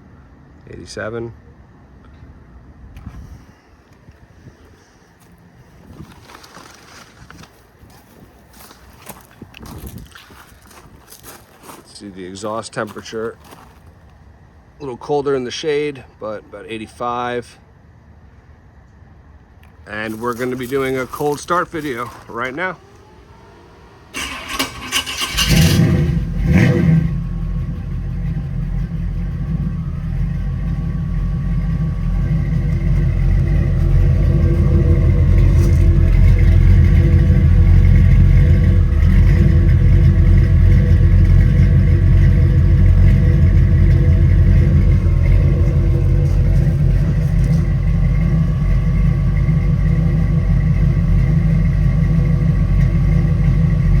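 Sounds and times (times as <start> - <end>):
engine revving and idling: 20.4 - 54.0
engine starter cranking: 20.8 - 54.0.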